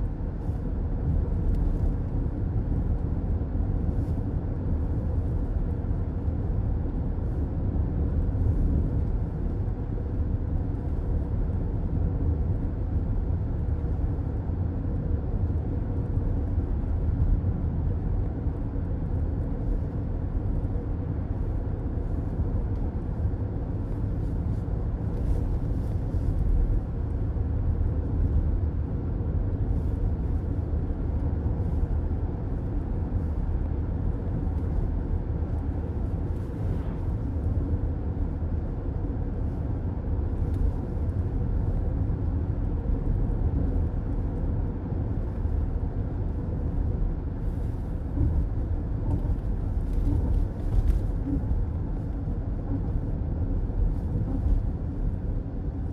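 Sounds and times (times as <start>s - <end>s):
car road noise from inside: 0.0s - 55.9s.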